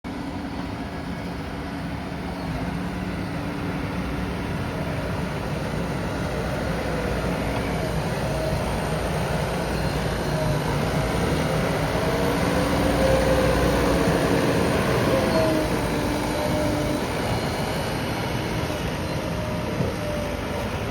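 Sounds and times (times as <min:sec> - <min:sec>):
diesel engine running: 0:00.1 - 0:20.9.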